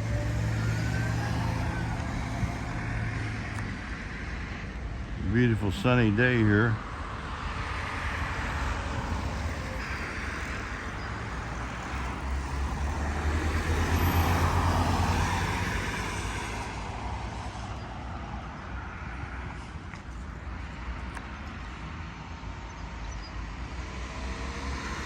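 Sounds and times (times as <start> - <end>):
low road rumble: 0.0 - 25.0
vehicle passing: 11.2 - 17.6.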